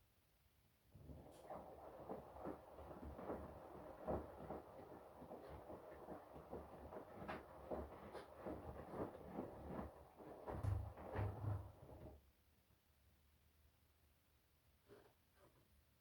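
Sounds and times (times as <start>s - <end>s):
wet laundry tumbling and sloshing: 1.0s - 12.2s.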